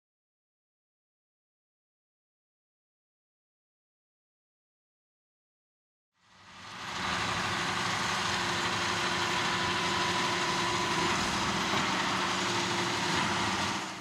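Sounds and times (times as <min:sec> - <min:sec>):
tractor diesel engine idling: 0:06.4 - 0:14.0.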